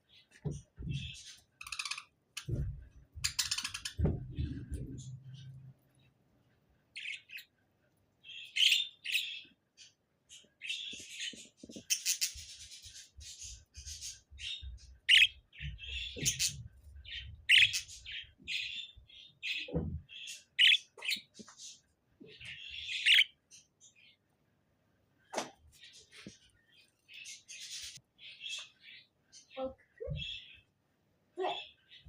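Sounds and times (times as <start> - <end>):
budgerigar chirping and chattering: 1.0 - 2.2, 3.2 - 4.0, 8.2 - 9.5, 10.4 - 21.4, 22.3 - 23.4.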